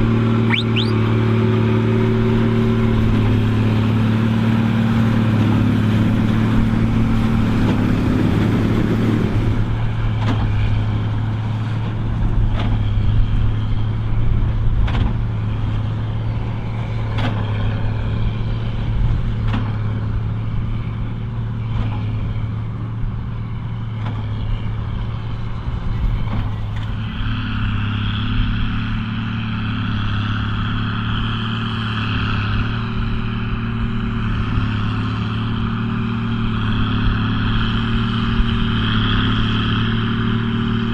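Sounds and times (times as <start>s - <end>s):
tractor diesel engine running: 0.0s - 40.9s
high-pitched whine: 0.4s - 1.2s.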